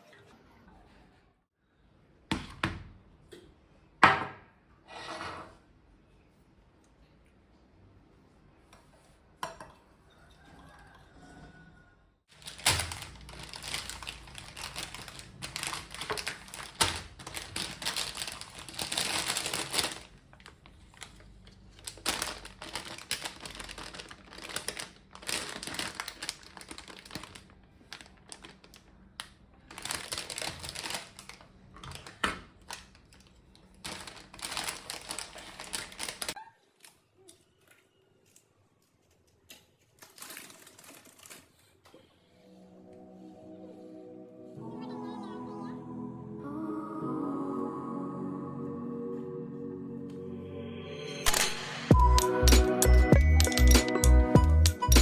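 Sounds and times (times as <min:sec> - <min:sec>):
rustling: 0:12.3 - 0:28.9, 0:29.7 - 0:36.4
utensils clicking and tapping: 0:52.2 - 0:55.0.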